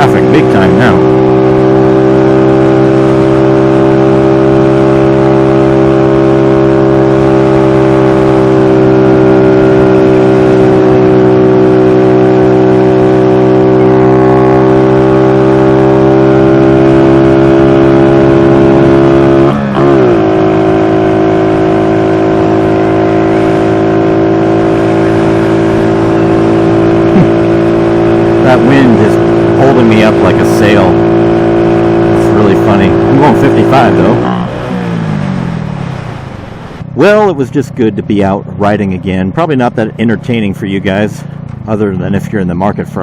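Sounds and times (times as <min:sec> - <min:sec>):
motorbike engine running: 0:00.0 - 0:43.0.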